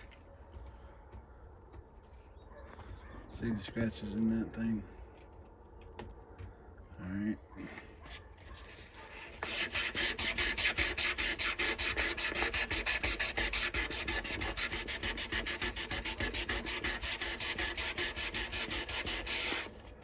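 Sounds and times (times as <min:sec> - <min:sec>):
sandpaper rubbing on steel blade: 0:08.5 - 0:19.9.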